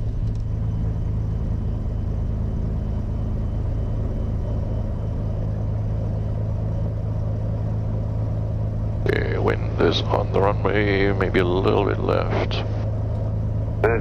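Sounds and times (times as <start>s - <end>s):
piston aircraft engine droning: 0.0s - 14.0s.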